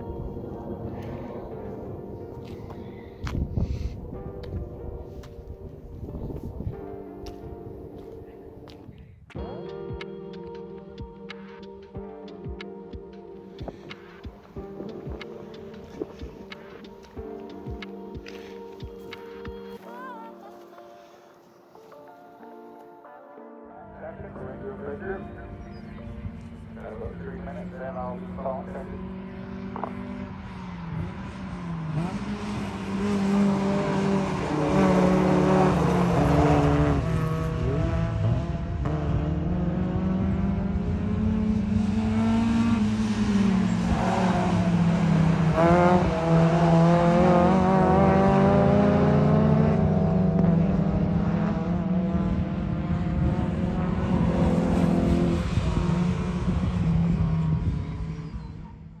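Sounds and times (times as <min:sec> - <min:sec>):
car engine accelerating through gears: 0:00.0 - 0:05.3, 0:25.6 - 0:59.0.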